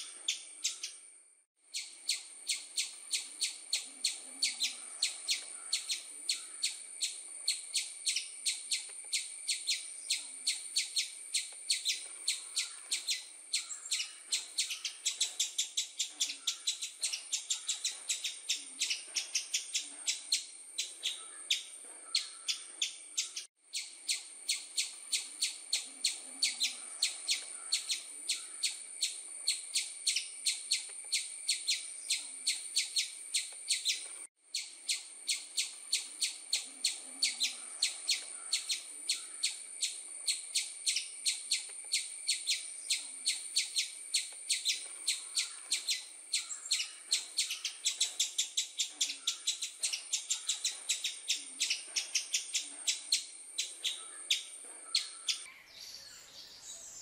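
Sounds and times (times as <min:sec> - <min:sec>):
bird chirping fast: 0:01.7 - 0:55.4.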